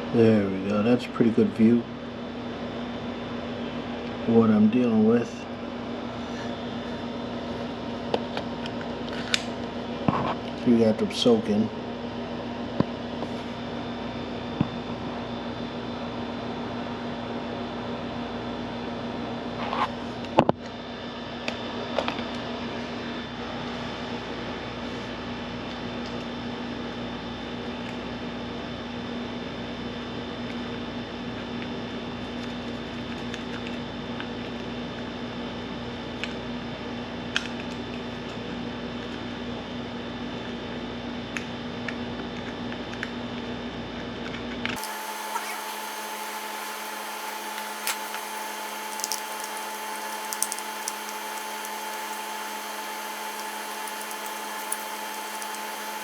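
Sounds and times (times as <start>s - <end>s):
machine hum and hiss: 43.8s - 56.0s.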